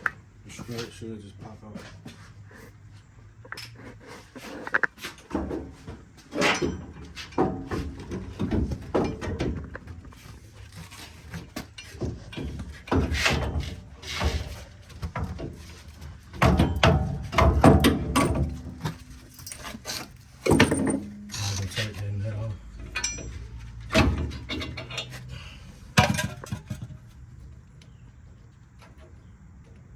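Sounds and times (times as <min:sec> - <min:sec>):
metal knocks and clanks: 0:04.7 - 0:27.2.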